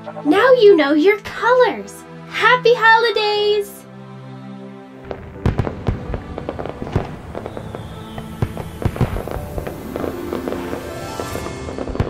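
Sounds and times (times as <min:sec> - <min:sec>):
background music: 0:00.0 - 0:12.0
fireworks bangs and crackles: 0:05.1 - 0:12.0.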